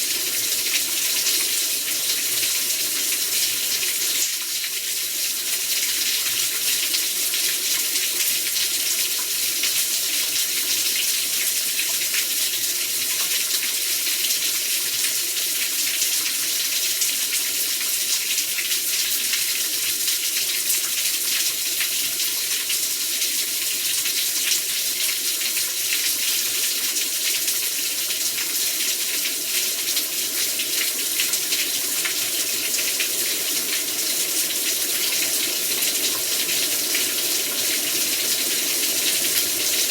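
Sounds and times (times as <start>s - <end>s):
heavy rain pouring: 29.7s - 39.9s.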